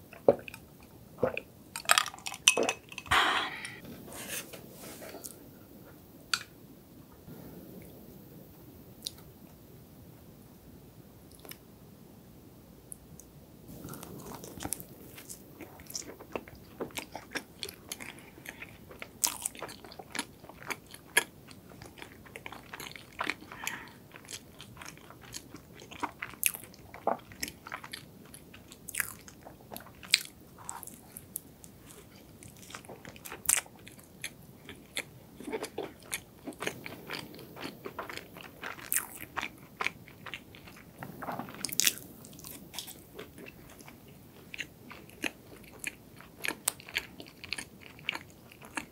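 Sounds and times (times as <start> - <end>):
biting and chewing with crunches: 13.7 - 48.9.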